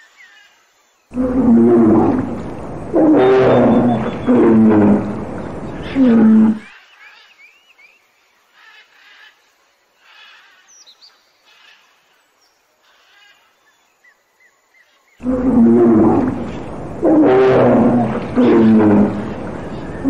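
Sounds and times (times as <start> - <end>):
large animal roaring: 1.1 - 6.7, 15.2 - 20.0.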